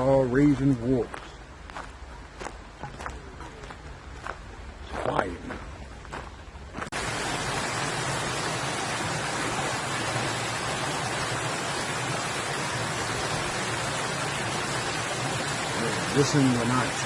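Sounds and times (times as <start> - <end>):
water splashing over rocks: 6.9 - 17.0.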